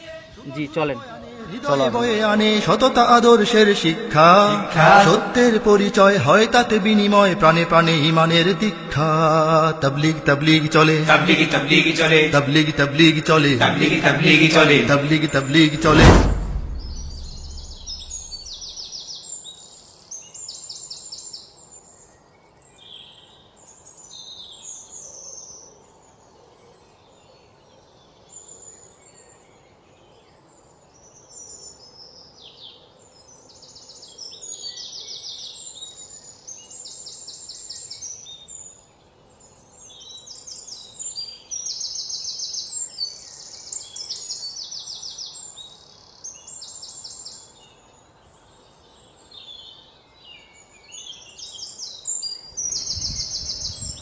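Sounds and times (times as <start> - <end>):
birds chirping and singing: 52.5 - 54.0.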